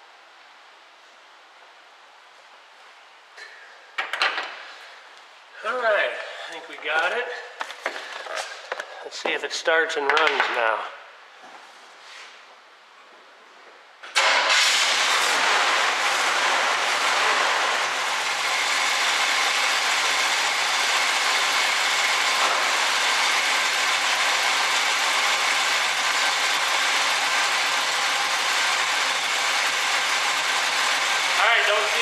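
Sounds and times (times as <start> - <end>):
car engine starting and idling: 14.0 - 32.0.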